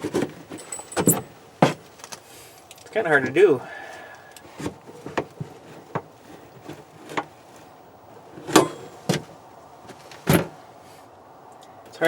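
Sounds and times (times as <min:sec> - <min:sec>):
brake pedal clicks and knocks: 0:08.4 - 0:09.3.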